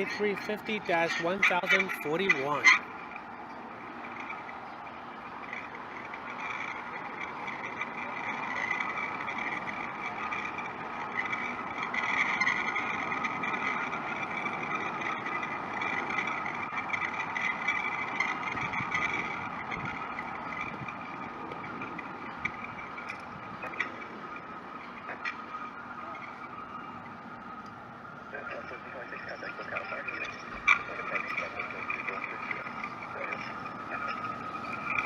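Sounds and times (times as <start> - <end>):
jet airliner engines passing: 0.0 - 35.0.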